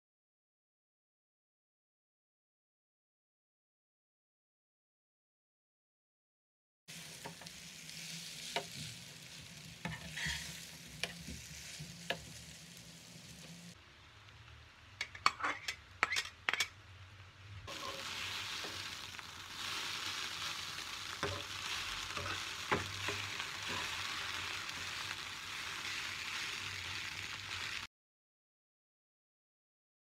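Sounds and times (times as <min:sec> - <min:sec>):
noodles sizzling in a pan: 0:06.9 - 0:15.0, 0:17.6 - 0:27.9.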